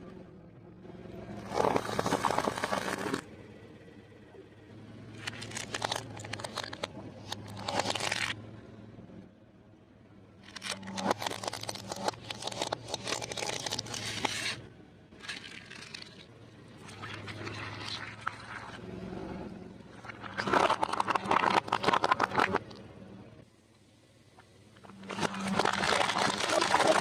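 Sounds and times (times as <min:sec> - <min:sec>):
fried food crunching: 0:05.2 - 0:08.4, 0:10.5 - 0:14.5, 0:15.2 - 0:18.8, 0:20.0 - 0:22.8, 0:24.8 - 0:27.0.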